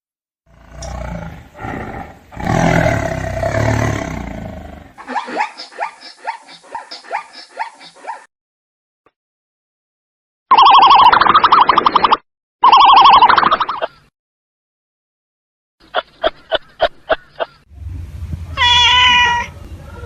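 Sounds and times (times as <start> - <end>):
animal roaring: 0.5 - 5.0.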